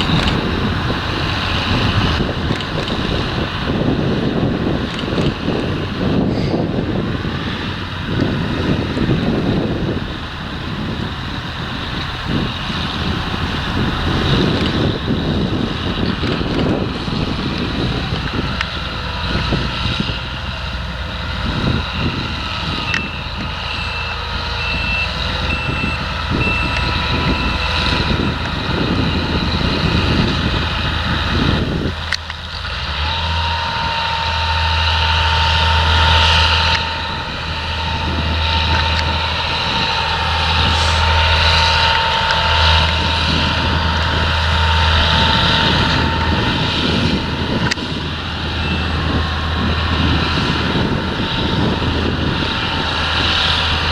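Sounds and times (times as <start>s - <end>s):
diesel machinery engines: 0.0s - 53.9s
wind buffeting microphone: 0.0s - 53.9s
reversing alarm beeping: 21.4s - 31.9s, 33.4s - 53.0s.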